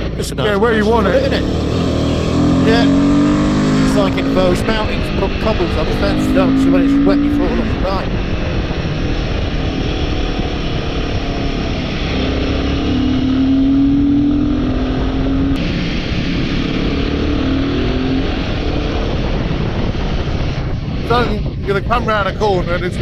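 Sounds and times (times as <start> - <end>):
motorcycle engine running: 0.0 - 15.7
wind and road noise: 0.0 - 23.0.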